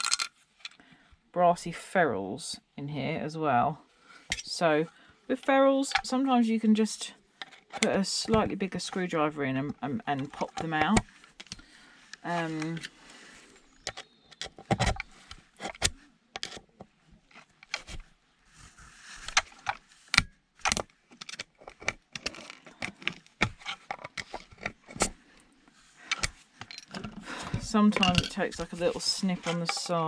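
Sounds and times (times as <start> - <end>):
small metal parts clinking: 0.0 - 0.8, 26.6 - 27.2, 27.8 - 28.8
screwdriver clicking and scraping: 13.8 - 16.7, 19.2 - 25.2, 26.1 - 30.0.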